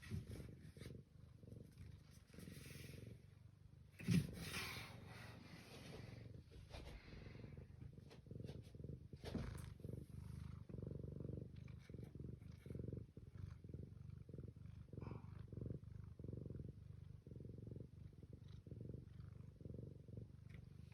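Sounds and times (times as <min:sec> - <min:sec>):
cat purring: 0:00.0 - 0:20.9.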